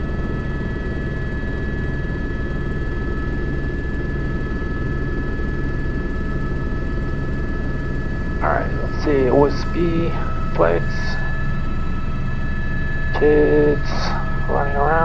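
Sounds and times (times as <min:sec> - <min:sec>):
helicopter rotor and engine noise: 0:00.0 - 0:15.0
constant high tones: 0:08.2 - 0:15.0.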